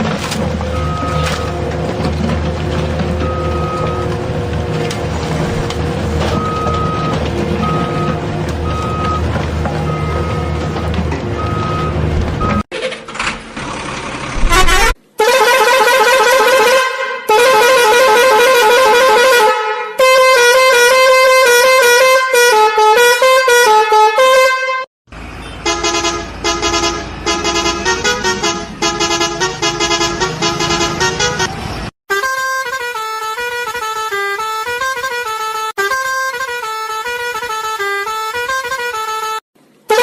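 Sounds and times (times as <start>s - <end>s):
musical vehicle horn blasts: 14.4s - 40.0s.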